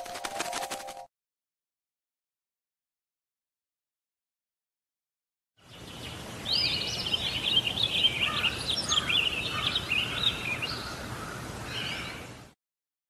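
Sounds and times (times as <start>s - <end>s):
birds chirping and warbling: 5.6s - 12.4s.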